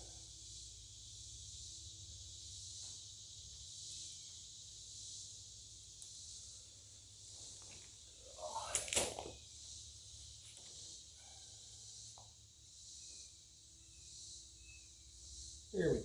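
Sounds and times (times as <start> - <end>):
high hiss: 0.0 - 12.1.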